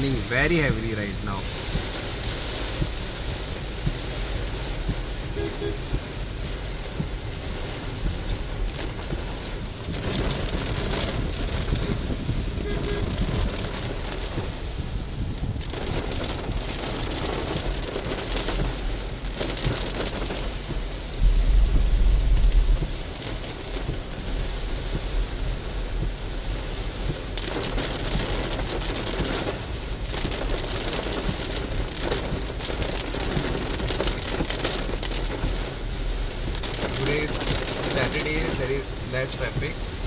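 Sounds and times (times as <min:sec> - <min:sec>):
heavy rain on car roof: 0:00.0 - 0:40.0
low rumble: 0:20.5 - 0:27.3.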